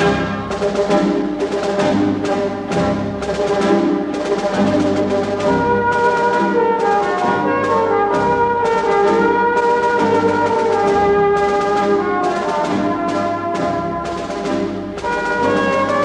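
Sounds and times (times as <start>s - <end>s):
orchestral brass sustained chords: 0.0s - 0.8s, 5.4s - 16.0s.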